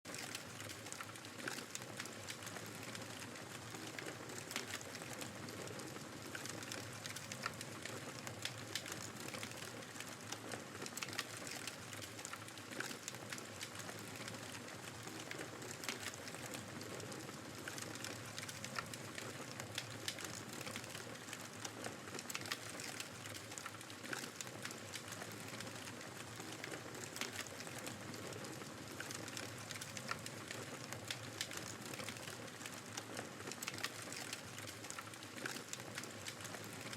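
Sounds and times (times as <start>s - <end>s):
wood fire crackling and popping: 0.1s - 36.9s.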